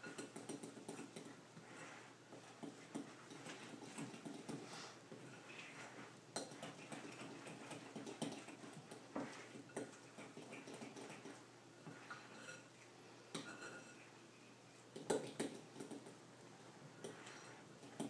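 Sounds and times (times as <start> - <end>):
utensil scraping a mixing bowl: 17.0 - 17.7.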